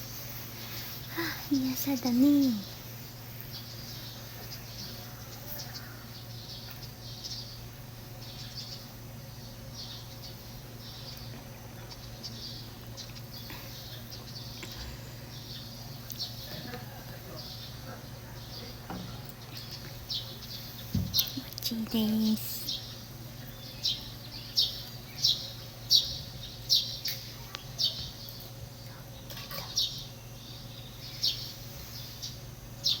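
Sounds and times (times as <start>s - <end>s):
birds chirping: 0.0s - 33.0s
steady low hum: 0.0s - 33.0s
bird chirping: 19.4s - 28.5s.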